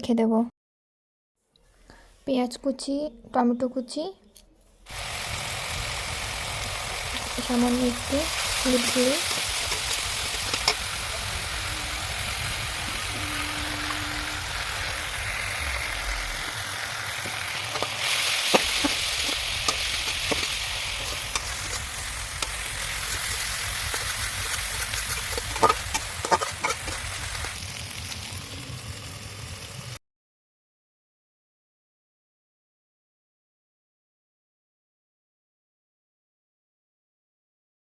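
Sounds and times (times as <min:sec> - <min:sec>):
vegetables sizzling in hot oil: 0:04.9 - 0:30.0.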